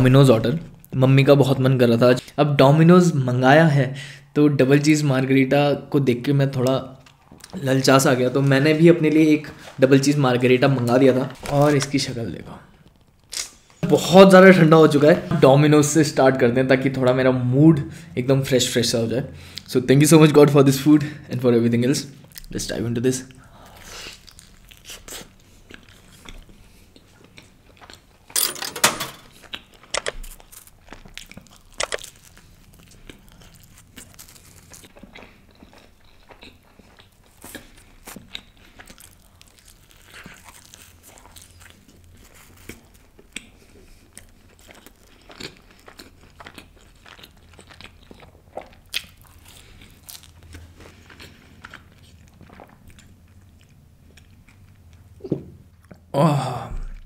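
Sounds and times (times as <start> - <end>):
crunchy pizza bite: 29.3 - 54.6
chewing clicks and smacks: 42.7 - 56.0.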